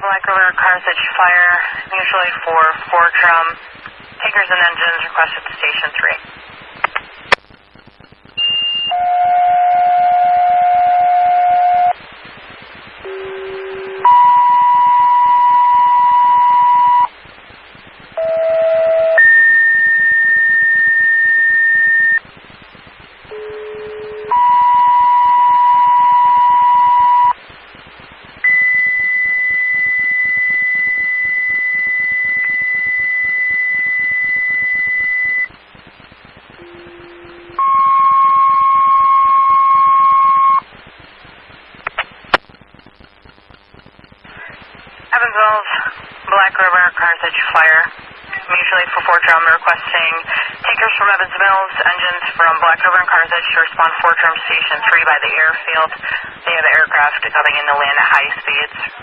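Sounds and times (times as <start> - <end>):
two-tone pager tones over radio: 13.1 - 17.1, 23.3 - 27.4.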